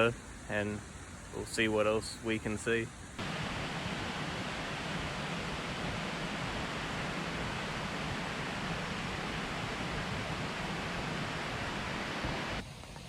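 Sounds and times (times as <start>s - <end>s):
waterfall roaring: 3.2s - 12.6s.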